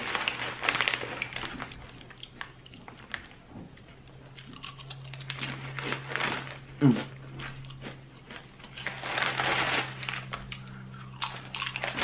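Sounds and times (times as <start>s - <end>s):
faint low hum: 0.0s - 12.0s
person chewing crunchy chips: 0.0s - 12.0s.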